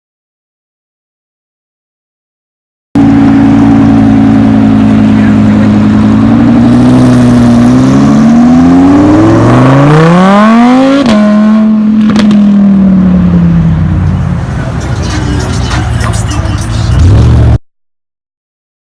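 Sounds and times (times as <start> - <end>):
car engine running: 3.0 - 17.6.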